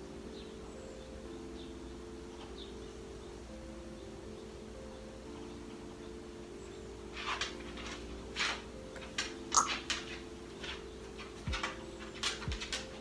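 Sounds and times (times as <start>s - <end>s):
small glass bottles clicking: 7.2s - 13.0s.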